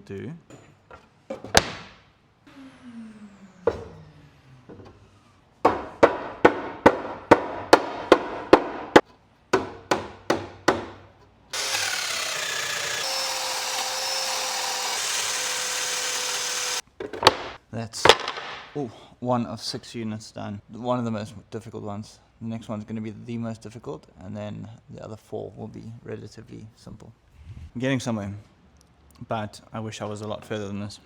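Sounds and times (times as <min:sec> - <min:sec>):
long falling whine: 0:02.5 - 0:05.2
sharp wooden knocks: 0:05.6 - 0:11.0, 0:16.4 - 0:18.7
power tool running: 0:11.5 - 0:16.8.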